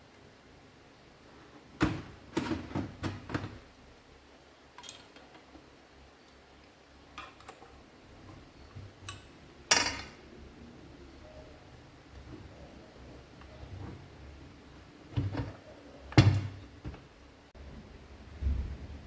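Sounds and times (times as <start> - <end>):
metal tools clinking and knocking: 4.8 - 5.5, 9.0 - 10.2.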